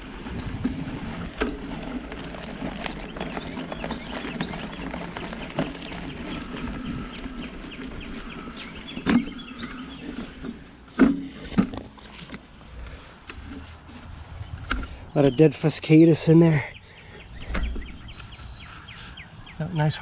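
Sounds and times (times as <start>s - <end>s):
footsteps crackling underfoot: 0.0s - 15.5s.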